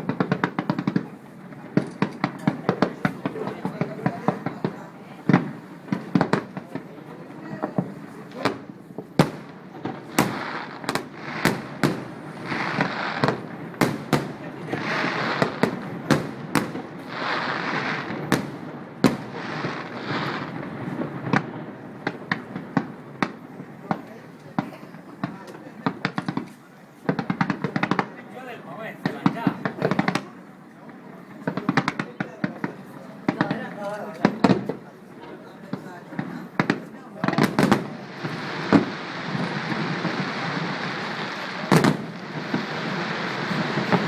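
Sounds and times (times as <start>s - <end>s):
firework crackling hiss: 0.0s - 23.5s, 36.6s - 44.0s
firework bangs: 0.0s - 44.0s.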